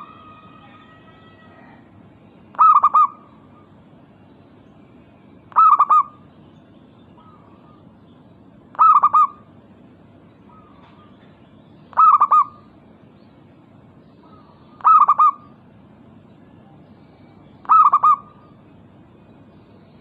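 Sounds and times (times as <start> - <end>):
dove cooing: 2.5 - 3.8, 5.5 - 6.2, 8.7 - 9.5, 10.5 - 11.3, 11.9 - 12.7, 14.2 - 15.6, 17.6 - 18.6.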